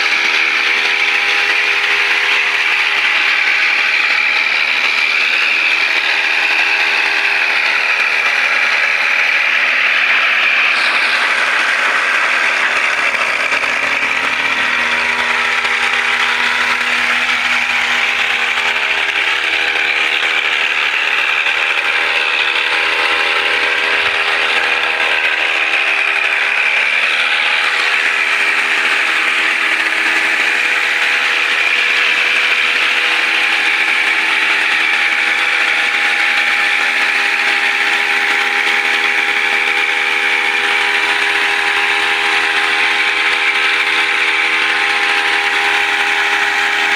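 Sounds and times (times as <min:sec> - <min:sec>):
brush cutter engine running: 0:00.0 - 0:46.9.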